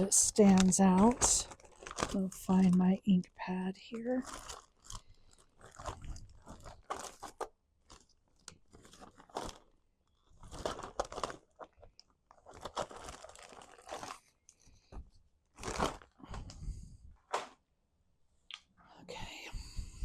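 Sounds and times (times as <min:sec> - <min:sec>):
paper crinkling and rustling: 0:00.0 - 0:02.8, 0:04.0 - 0:16.7.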